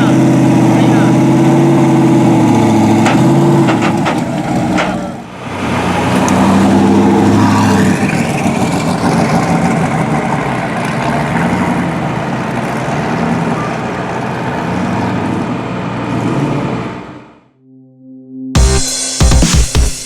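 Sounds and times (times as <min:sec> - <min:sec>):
car engine running at low revs: 0:00.0 - 0:17.5.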